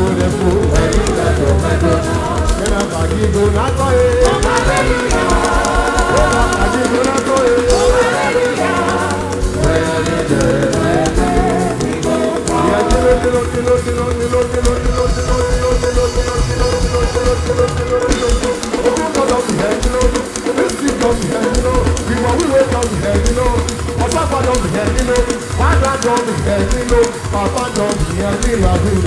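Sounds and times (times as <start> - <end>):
held keyboard note: 0.0 - 18.3
church band music: 0.0 - 29.0
person singing: 0.0 - 29.0.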